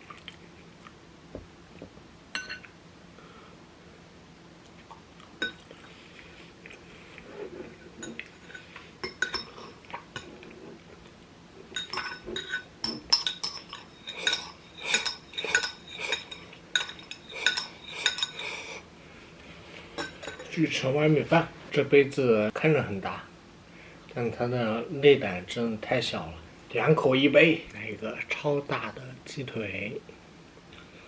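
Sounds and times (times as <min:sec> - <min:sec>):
utensils clinking against dishes: 0:08.0 - 0:10.3, 0:11.7 - 0:18.6, 0:20.0 - 0:20.6.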